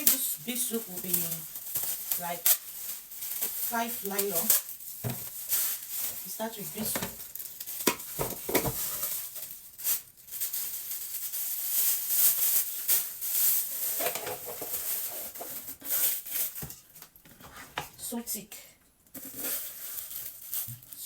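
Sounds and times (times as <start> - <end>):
plastic bags rustling: 0.0 - 18.1, 19.1 - 21.0.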